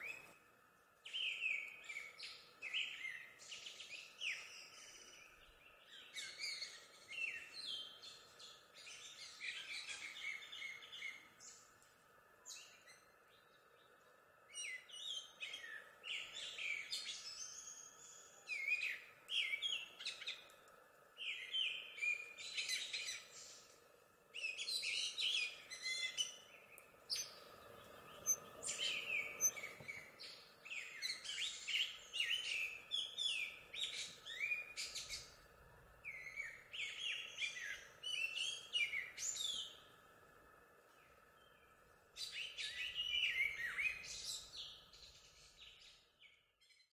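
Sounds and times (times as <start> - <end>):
songbird chirping and whistling: 0.0 - 0.4, 24.4 - 35.3, 36.0 - 39.8, 41.0 - 46.0.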